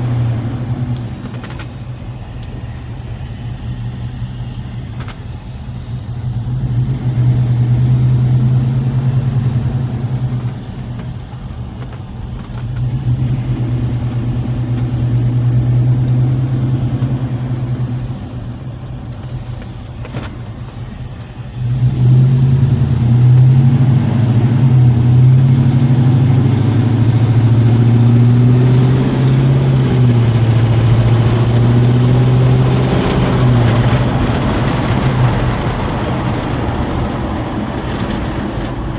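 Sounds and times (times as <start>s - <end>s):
truck engine revving: 0.0s - 38.9s.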